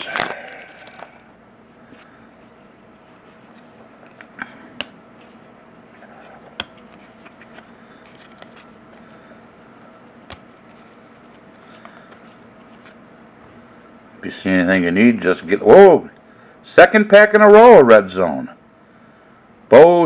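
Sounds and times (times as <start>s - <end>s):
steady low hum: 0.0s - 20.0s
faint rustling of cards: 5.1s - 9.4s, 10.3s - 13.6s.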